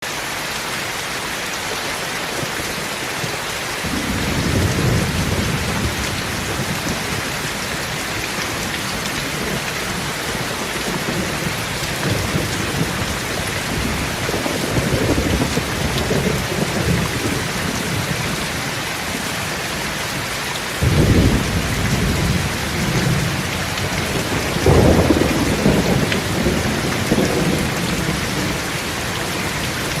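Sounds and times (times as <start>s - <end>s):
heavy rain hissing: 0.1s - 30.0s
thunder rumbling: 3.8s - 19.2s, 20.8s - 30.0s.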